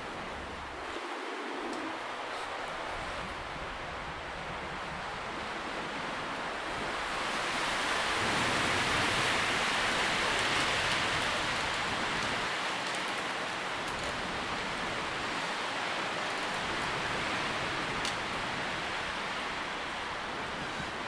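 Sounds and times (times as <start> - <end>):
wind rustling leaves: 0.0 - 21.0.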